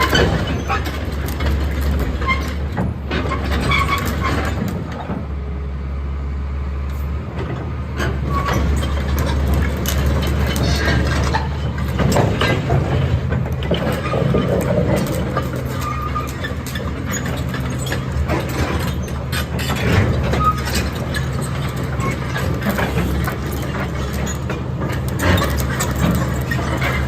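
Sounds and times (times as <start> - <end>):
excavator diesel engine running: 0.0 - 27.0
knocks and clanks: 7.4 - 27.0.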